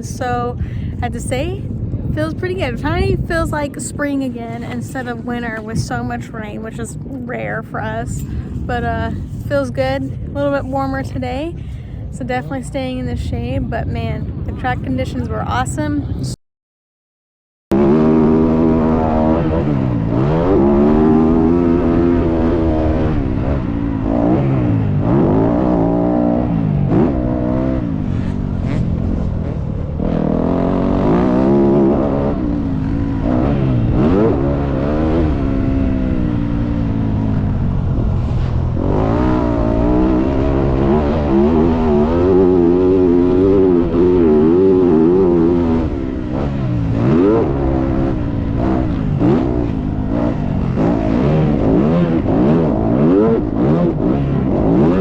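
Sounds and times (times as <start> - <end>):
dirt bike engine revving: 17.7 - 55.0.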